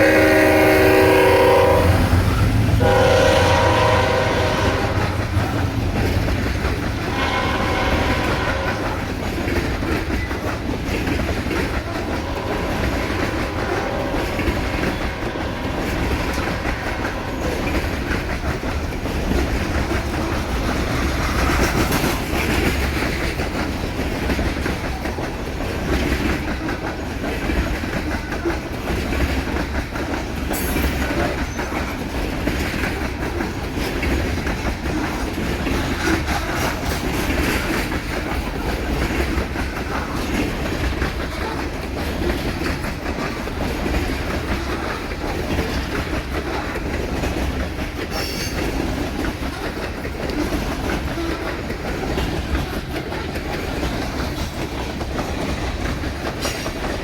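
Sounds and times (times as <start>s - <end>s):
freight train rumbling past: 0.0s - 57.0s
wheels clicking over rail joints: 0.0s - 57.0s.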